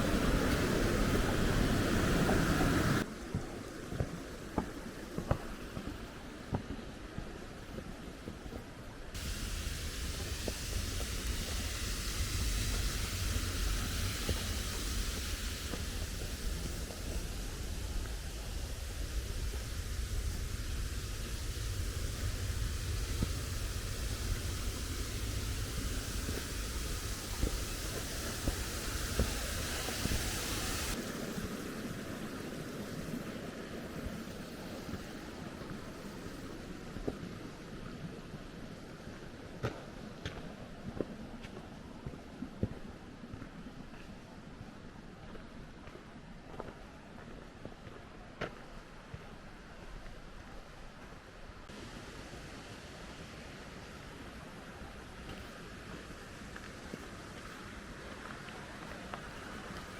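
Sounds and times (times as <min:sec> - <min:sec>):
stream rushing over rocks: 0:00.0 - 0:03.1
mountain stream rushing: 0:00.0 - 0:08.2, 0:08.9 - 0:45.4, 0:48.8 - 0:59.9.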